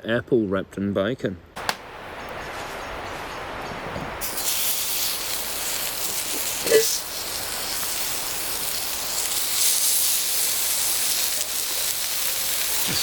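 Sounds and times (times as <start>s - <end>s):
meat sizzling on a hotplate: 4.2s - 13.0s.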